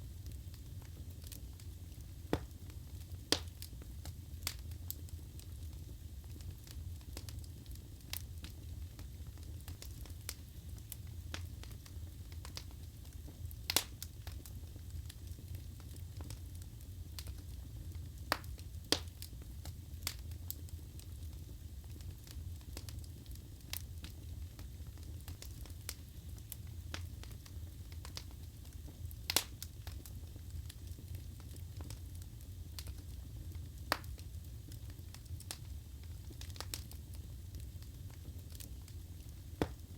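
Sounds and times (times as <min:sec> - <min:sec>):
burning logs crackling and popping: 0:00.0 - 0:39.9
rumble of fire flames: 0:00.0 - 0:39.9.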